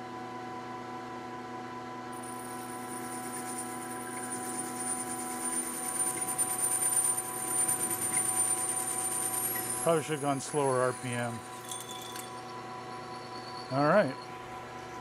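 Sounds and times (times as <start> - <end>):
high-pitched ringing squeal: 2.2 - 15.0
metal lathe running: 2.2 - 15.0.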